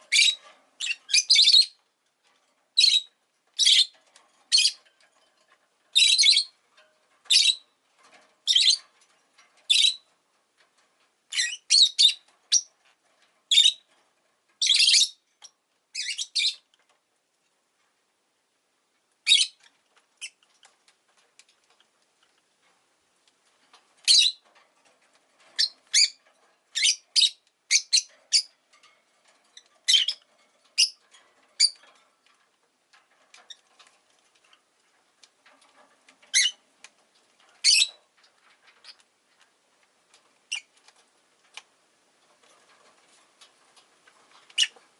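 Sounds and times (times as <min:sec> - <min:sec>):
lovebird chirping: 0:00.1 - 0:01.8, 0:02.8 - 0:03.9, 0:06.0 - 0:06.5, 0:07.3 - 0:07.6, 0:08.5 - 0:08.8, 0:11.3 - 0:12.7, 0:13.5 - 0:13.8, 0:14.6 - 0:15.2, 0:15.9 - 0:16.6, 0:19.2 - 0:19.6, 0:24.0 - 0:24.4, 0:25.6 - 0:26.2, 0:26.8 - 0:28.5, 0:29.9 - 0:30.2, 0:37.6 - 0:37.9, 0:44.6 - 0:44.8.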